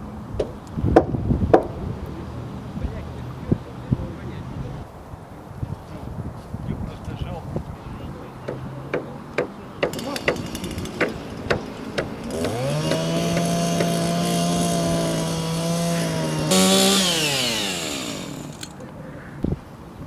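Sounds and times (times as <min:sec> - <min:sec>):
sharp knocks: 0:08.5 - 0:14.0
power saw running: 0:09.8 - 0:18.8.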